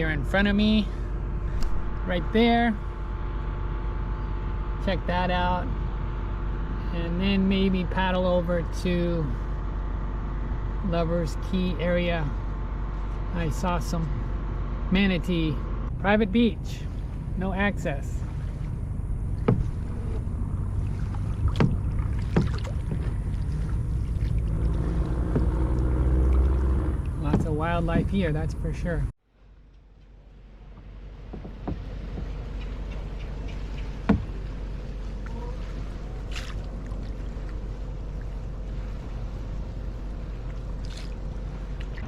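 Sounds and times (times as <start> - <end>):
low rumble: 0.0 - 42.0
paddle strokes in water: 16.7 - 28.4, 30.7 - 42.0
sharp knocks: 19.4 - 19.9, 21.4 - 23.2, 30.8 - 34.4.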